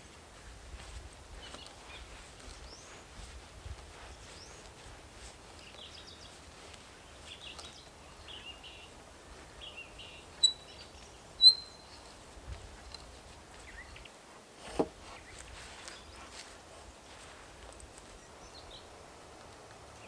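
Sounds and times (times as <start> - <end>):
small birds chirping: 0.3 - 14.2, 15.0 - 20.0
sharp high chirps: 10.4 - 10.8, 11.4 - 12.0.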